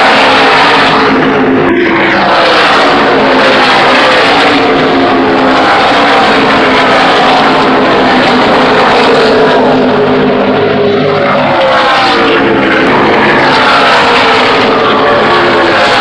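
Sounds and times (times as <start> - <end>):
race car engines passing at high revs: 0.0 - 16.0.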